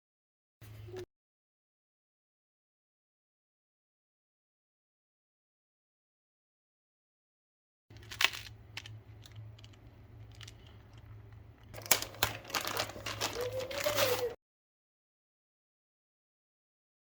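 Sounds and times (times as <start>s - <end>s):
packaging crinkling: 7.9s - 14.4s.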